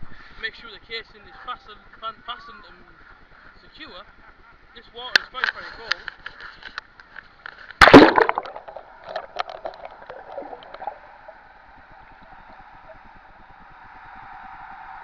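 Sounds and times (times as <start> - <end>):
water splashing against camera: 7.5 - 11.4
muffled water gurgling: 7.8 - 15.0.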